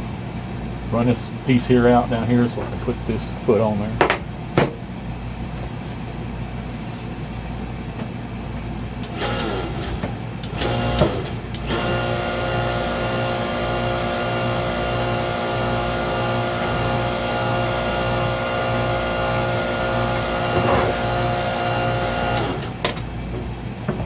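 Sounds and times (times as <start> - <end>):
hydraulic motor and pump running: 9.0 - 24.0.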